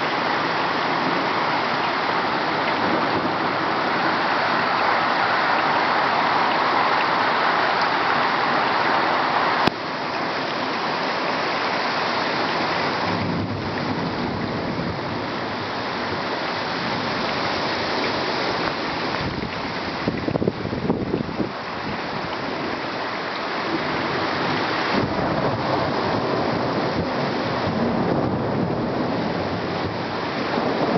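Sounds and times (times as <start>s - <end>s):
heavy rain pouring: 0.0s - 30.9s
thunder rumbling: 12.8s - 17.3s, 24.9s - 30.9s.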